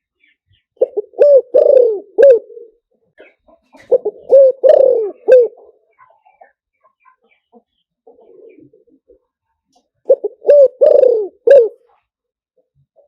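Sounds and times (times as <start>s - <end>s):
dove cooing: 0.8s - 5.8s, 8.1s - 9.0s, 10.0s - 11.9s.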